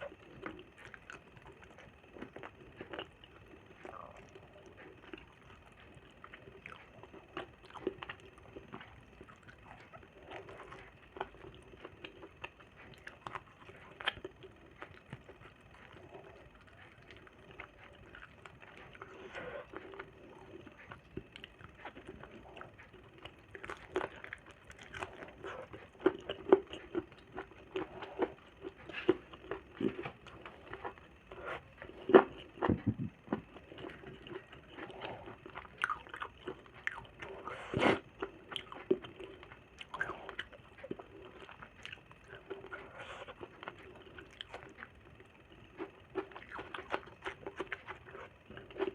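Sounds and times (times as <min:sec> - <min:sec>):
person chewing with wet smacks: 0:00.0 - 0:48.9.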